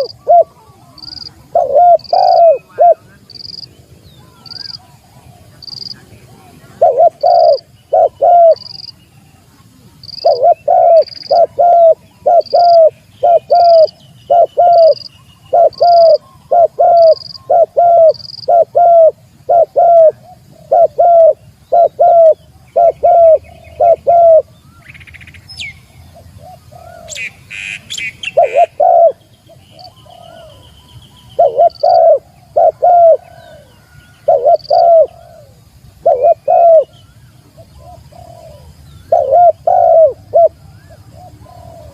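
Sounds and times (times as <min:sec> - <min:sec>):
dove cooing: 0:00.0 - 0:03.6, 0:04.2 - 0:08.9, 0:10.0 - 0:24.5, 0:26.1 - 0:30.7, 0:31.3 - 0:41.9
rustle: 0:00.0 - 0:41.9
small birds chirping: 0:00.0 - 0:41.9.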